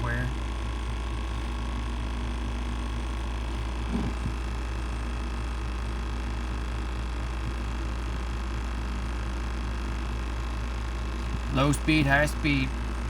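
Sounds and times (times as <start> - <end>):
steady low hum: 0.0 - 13.0
brief knock: 3.9 - 4.4.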